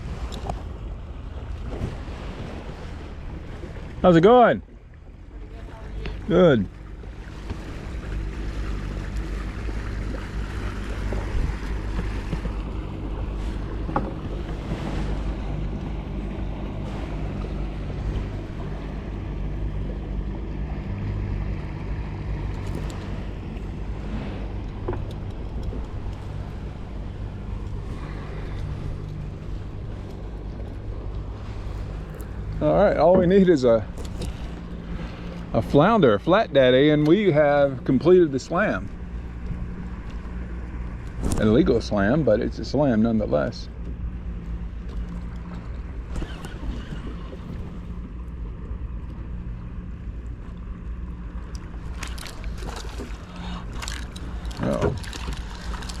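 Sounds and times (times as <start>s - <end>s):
boat engine droning: 0.0s - 56.0s
wind buffeting microphone: 6.0s - 43.4s, 44.6s - 48.2s.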